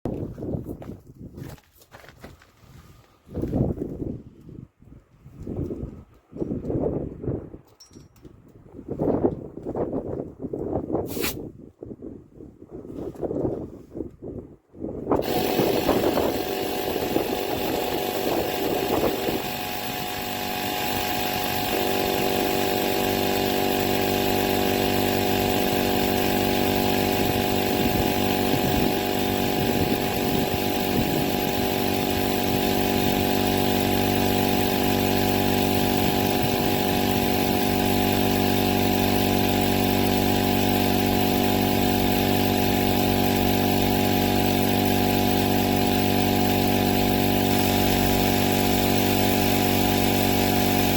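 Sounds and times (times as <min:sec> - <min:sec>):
air compressor motor drone: 0:15.2 - 0:50.9.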